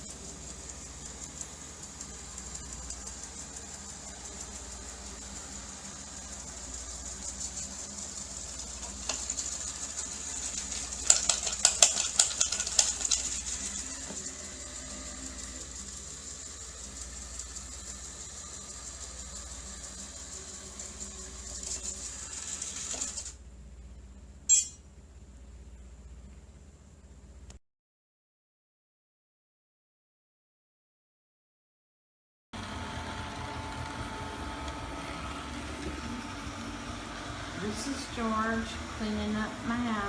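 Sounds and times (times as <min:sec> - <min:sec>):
rattling and clicking: 0:00.0 - 0:23.3
robot vacuum cleaner running: 0:00.0 - 0:23.4, 0:32.6 - 0:40.0
sharp click: 0:24.5 - 0:24.8.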